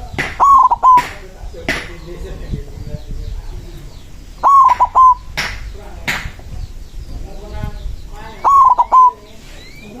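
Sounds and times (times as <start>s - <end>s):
dove cooing: 0.0s - 1.1s, 3.8s - 5.4s, 8.3s - 10.0s
small birds chirping: 0.0s - 10.0s.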